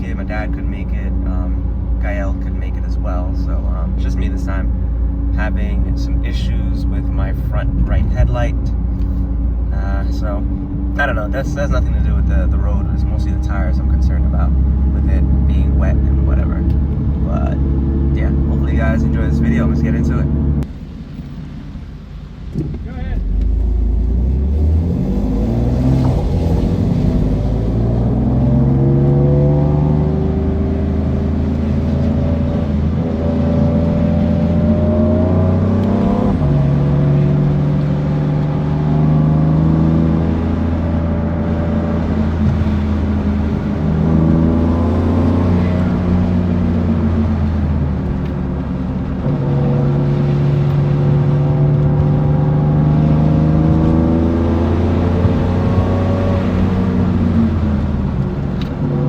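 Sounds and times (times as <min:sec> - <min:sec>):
car engine accelerating hard: 0:00.0 - 0:59.0.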